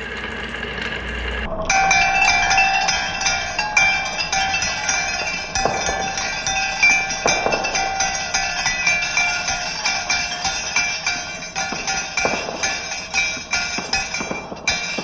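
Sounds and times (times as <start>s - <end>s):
marbles clicking along a run: 0.0s - 1.5s
ringing tones: 0.0s - 15.0s.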